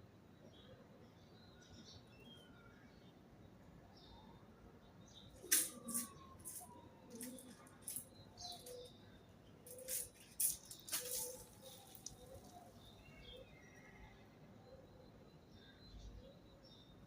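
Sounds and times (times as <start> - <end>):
birds rustling and flapping: 5.4 - 8.8, 9.7 - 12.6.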